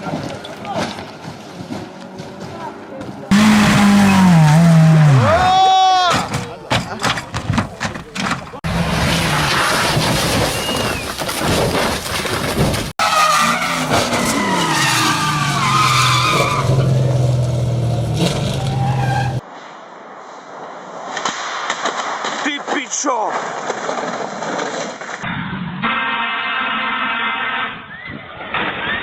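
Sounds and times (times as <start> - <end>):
tyres skidding and squealing: 0.0 - 19.5, 22.4 - 29.0
road and tyre noise: 0.0 - 29.0
car engine: 1.1 - 5.5, 13.0 - 19.4.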